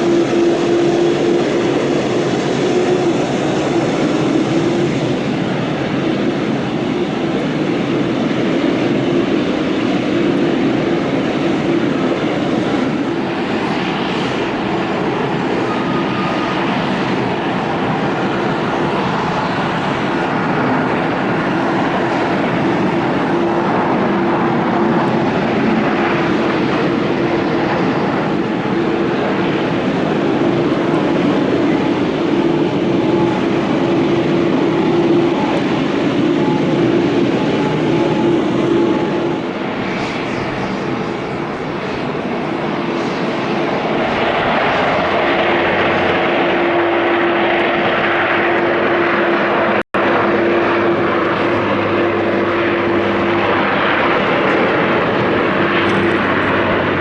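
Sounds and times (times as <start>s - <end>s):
jet engine rushing: 0.0s - 57.0s.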